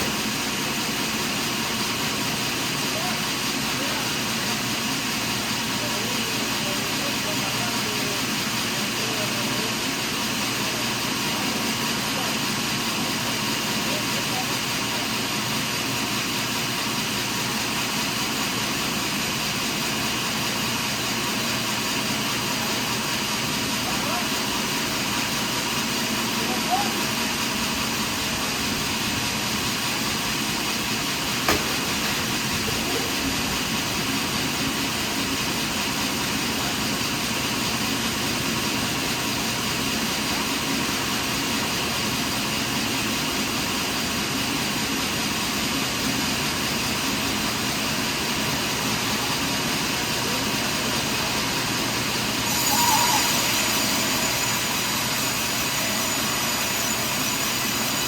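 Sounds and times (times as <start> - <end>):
sawmill machinery running: 0.0 - 58.0
sharp knock: 31.4 - 32.0
high hiss: 51.5 - 58.0.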